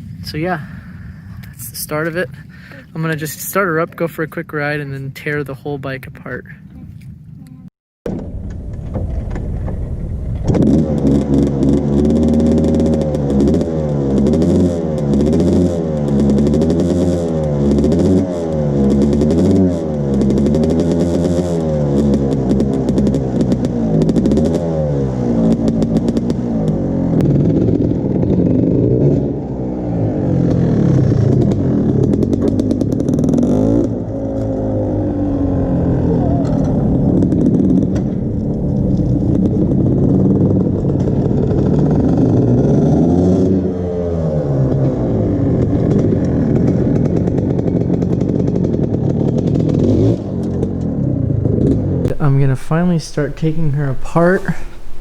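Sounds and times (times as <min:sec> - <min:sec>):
two-stroke motorcycle engine revving: 0:10.5 - 0:36.1.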